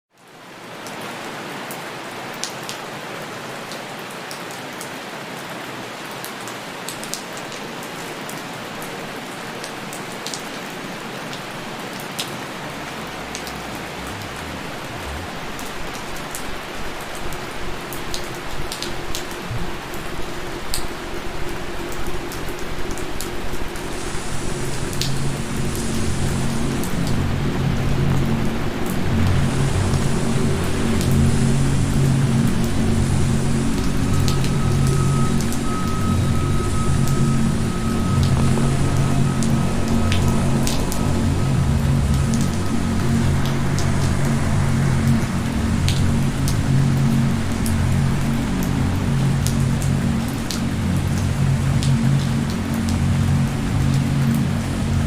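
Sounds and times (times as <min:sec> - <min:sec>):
rain falling: 0:00.1 - 0:55.0
low rumble: 0:11.4 - 0:55.0
soft background music: 0:12.2 - 0:55.0
sharp drips: 0:21.5 - 0:54.6.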